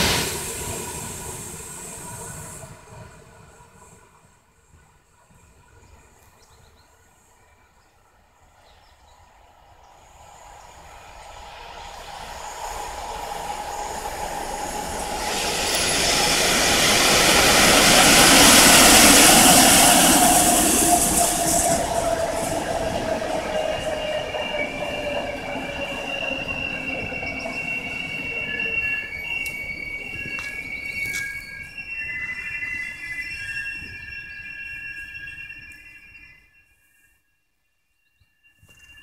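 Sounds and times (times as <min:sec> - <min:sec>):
electric train passing: 0:00.0 - 0:06.3, 0:07.0 - 0:36.6
wheel and brake squeals: 0:11.8 - 0:37.1.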